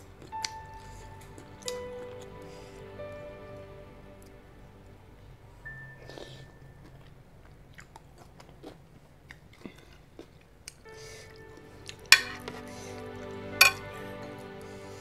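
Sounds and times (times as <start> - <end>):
wet chewing with clicks: 6.2 - 10.9.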